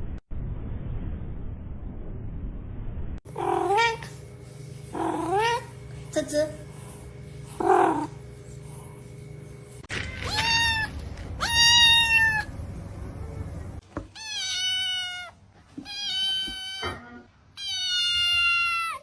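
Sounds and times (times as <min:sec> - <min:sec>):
cat meowing: 0:10.2 - 0:12.5, 0:14.1 - 0:19.0.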